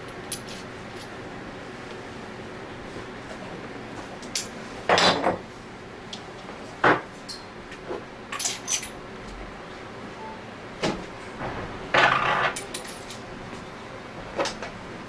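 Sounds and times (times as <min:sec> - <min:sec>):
metal parts clinking: 0:08.3 - 0:09.0, 0:11.9 - 0:13.3.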